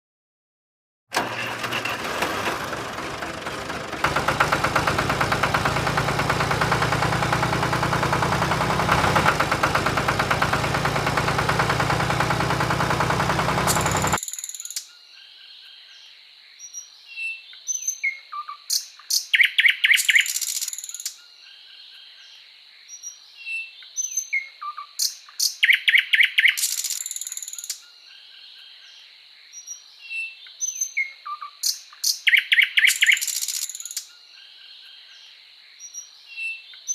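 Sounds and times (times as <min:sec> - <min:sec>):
small engine running: 0:01.1 - 0:14.2
birds chirping: 0:04.0 - 0:36.9.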